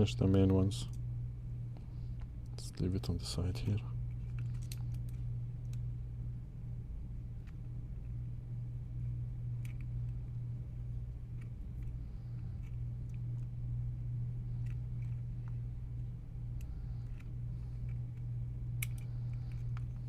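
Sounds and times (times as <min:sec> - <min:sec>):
steady low hum: 0:00.0 - 0:20.0
small parts clicking on work surface: 0:18.8 - 0:20.0.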